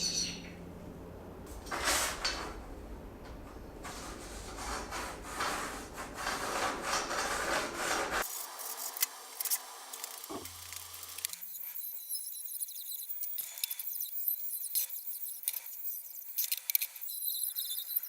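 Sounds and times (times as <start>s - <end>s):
scraping strokes by hand: 3.8s - 8.3s.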